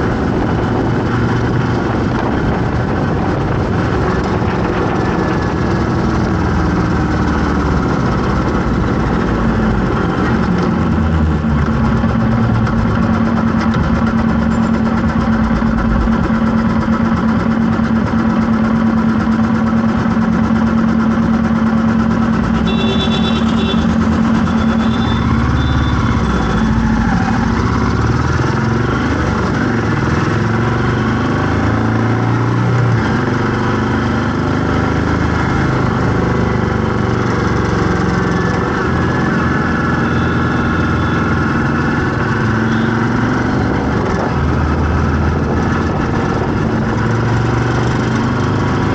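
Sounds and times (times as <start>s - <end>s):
vehicle engine running: 0.0s - 48.9s
brief high tone: 22.6s - 27.2s.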